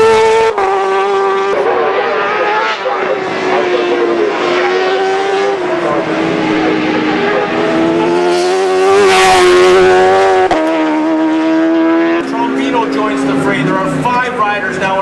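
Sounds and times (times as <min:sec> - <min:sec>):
racing motorcycles running hard: 0:00.0 - 0:15.0.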